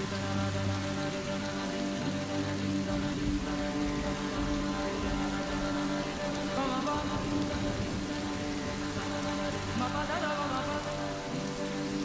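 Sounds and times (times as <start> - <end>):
music score of held notes: 0.0 - 12.0
rain falling: 0.0 - 12.0.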